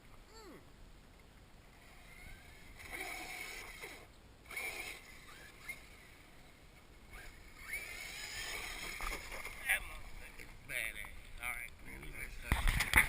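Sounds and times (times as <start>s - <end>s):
toy car motor whining: 1.8s - 10.2s.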